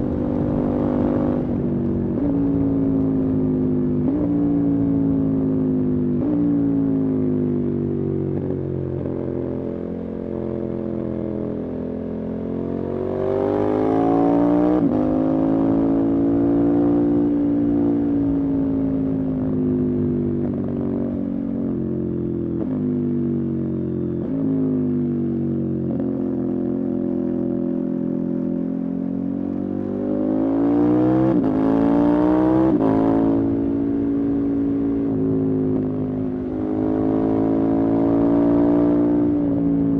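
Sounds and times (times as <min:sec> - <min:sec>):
motorcycle engine revving: 0:29.2 - 0:39.9.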